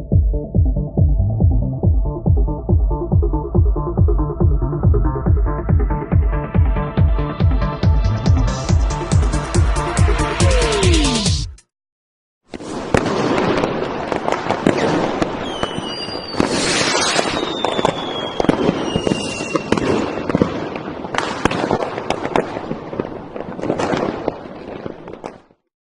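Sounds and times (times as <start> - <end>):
crackle of sharp pops and bangs: 12.5 - 25.7
descending whistles: 15.4 - 19.7.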